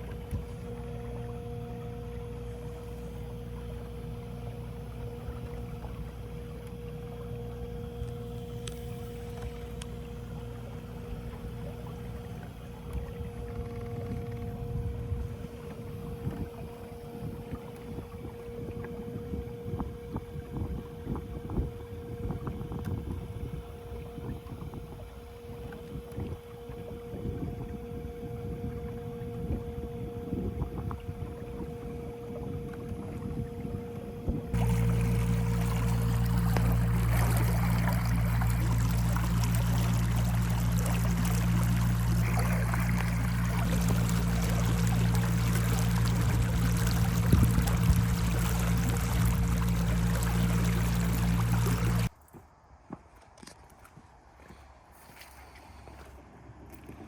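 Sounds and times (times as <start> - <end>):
electric boat motor whining: 0.0 - 52.1
knocks and splashes on hull: 34.3 - 52.1.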